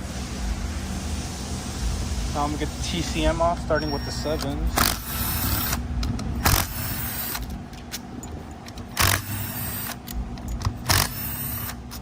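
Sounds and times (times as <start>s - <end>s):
steady low hum: 0.0s - 12.0s
socket wrench clinking: 7.2s - 9.2s, 10.0s - 11.1s.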